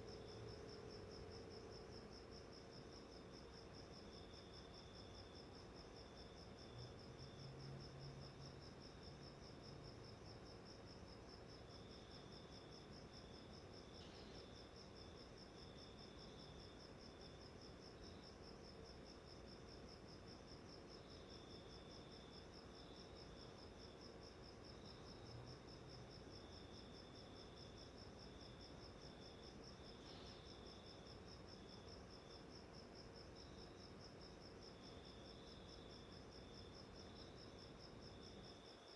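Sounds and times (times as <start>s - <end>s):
insect trill: 0.0s - 38.9s
lower insect trill: 11.6s - 38.9s.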